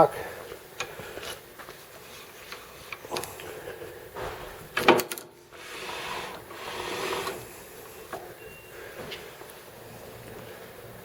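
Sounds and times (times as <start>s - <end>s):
metal scraping and sliding: 5.6s - 7.5s.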